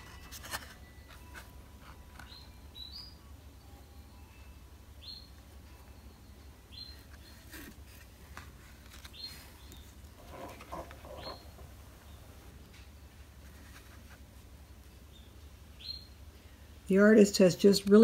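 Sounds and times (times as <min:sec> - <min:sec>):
cards being handled: 0:00.0 - 0:02.4, 0:07.1 - 0:11.5
small bird chirping: 0:02.2 - 0:03.3, 0:04.3 - 0:07.6, 0:08.8 - 0:12.4, 0:15.0 - 0:16.2.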